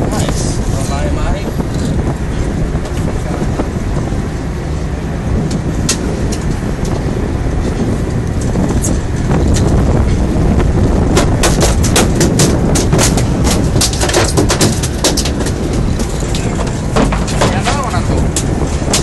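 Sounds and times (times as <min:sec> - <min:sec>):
boat engine running: 0:00.0 - 0:19.0
wind and water rush: 0:00.0 - 0:19.0
sharp knocks: 0:11.1 - 0:19.0.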